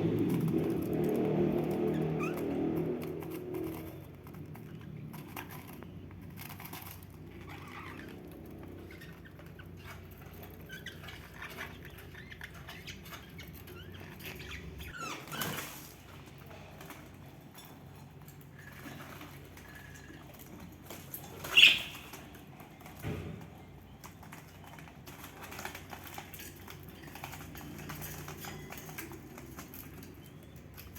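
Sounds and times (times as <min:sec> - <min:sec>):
scratching and pattering: 0:00.0 - 0:30.9
budgerigars chirping: 0:21.4 - 0:22.2.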